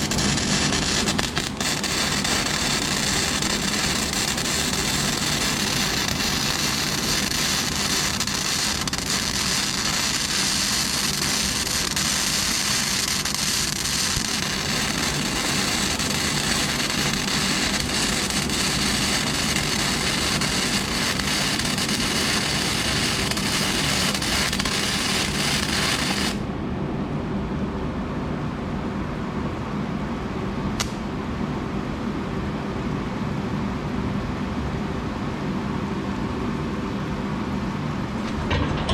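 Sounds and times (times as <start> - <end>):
welding arc crackling and sizzling: 0.0 - 26.4
low steady hum: 0.0 - 38.9
sharp tick: 30.8 - 31.0.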